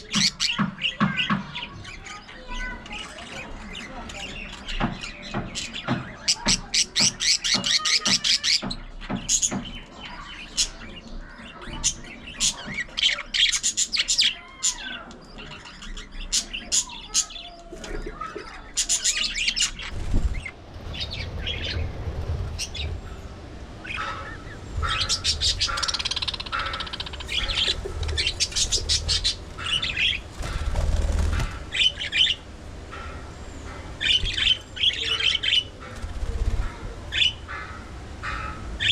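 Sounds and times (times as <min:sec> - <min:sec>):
low rumble: 0:19.8 - 0:38.8
budgerigars chattering: 0:22.5 - 0:38.9.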